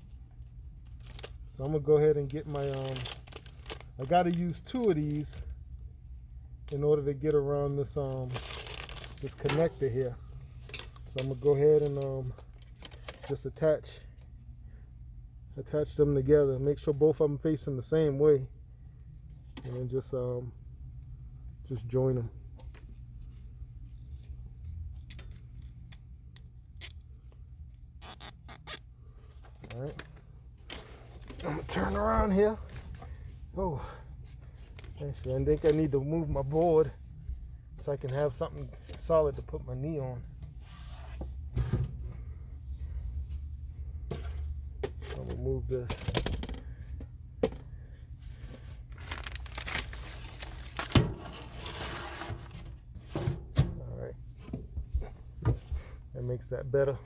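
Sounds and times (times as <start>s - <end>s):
zip ties ratcheting clicks: 28.0s - 28.8s
rustling and scraping board: 49.9s - 53.6s.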